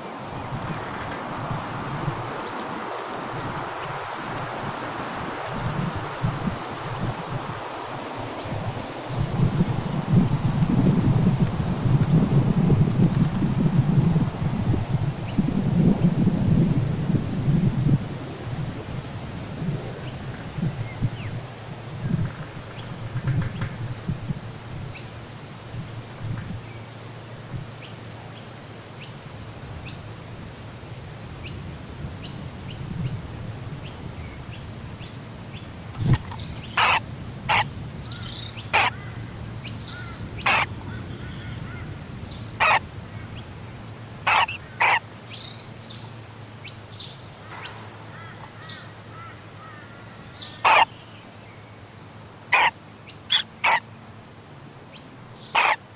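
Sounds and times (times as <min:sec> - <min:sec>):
bird giving harsh calls: 0:36.0 - 0:39.1, 0:39.9 - 0:40.7, 0:42.6 - 0:42.8, 0:44.3 - 0:45.0, 0:48.2 - 0:50.9, 0:52.5 - 0:53.8, 0:55.5 - 0:55.8.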